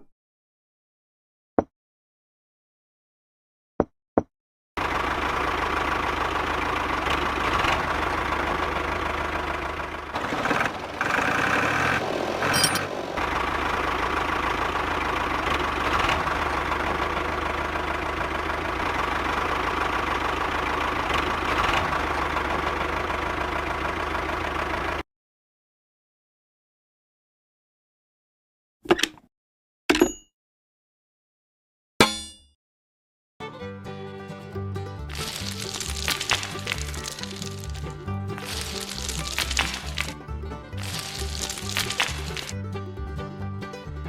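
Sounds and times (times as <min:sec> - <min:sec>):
engine idling: 0:04.8 - 0:25.0, 0:35.1 - 0:43.2.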